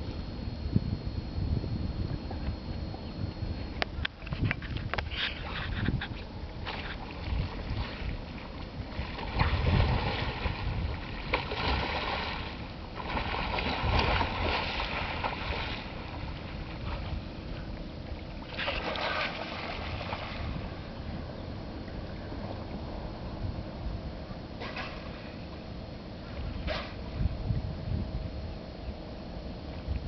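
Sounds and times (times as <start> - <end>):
wind buffeting microphone: 0.0 - 18.2, 19.4 - 25.0, 26.2 - 28.8
water splashing around a kayak: 4.4 - 20.9.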